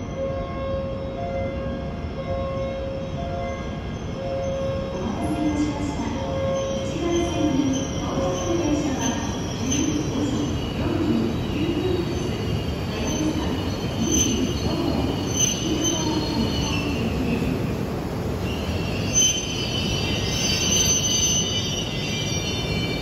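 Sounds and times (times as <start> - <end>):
train low rumble: 0.0 - 23.0
high-pitched brake squeals: 4.2 - 17.3, 18.4 - 23.0.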